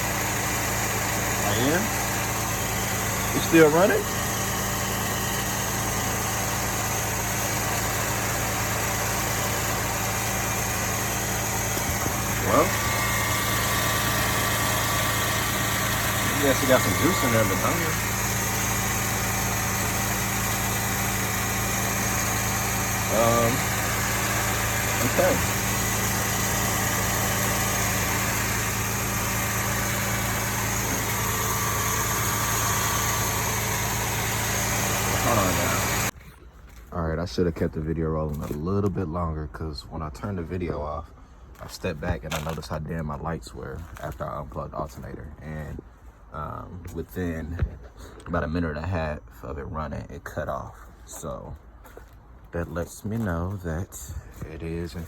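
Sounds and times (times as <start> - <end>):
car engine idling: 0.0 - 36.2.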